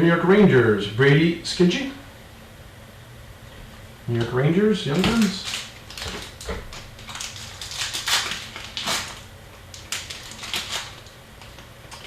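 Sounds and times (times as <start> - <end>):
foil wrappers and cards rustling: 4.9 - 12.0.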